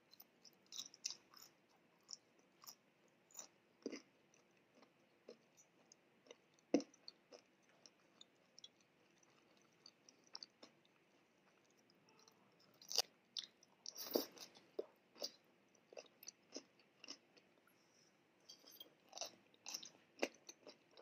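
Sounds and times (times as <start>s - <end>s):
chewing fries: 0.0s - 17.7s, 18.5s - 21.0s.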